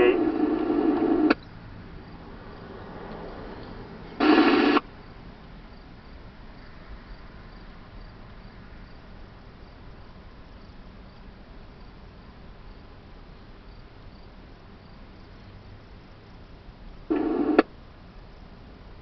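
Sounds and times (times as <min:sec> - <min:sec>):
buzzy radio scanner tone: 0:00.0 - 0:01.4, 0:04.2 - 0:04.8, 0:17.1 - 0:17.6
crickets chirping: 0:00.0 - 0:19.0.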